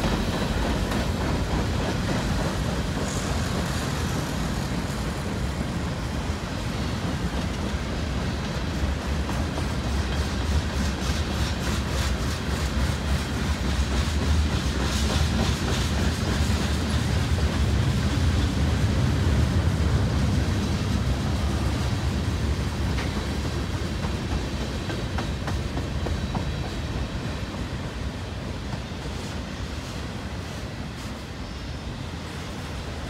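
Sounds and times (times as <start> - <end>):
freight train wheels rumbling: 0.0 - 33.0
rail clicks: 0.0 - 33.0.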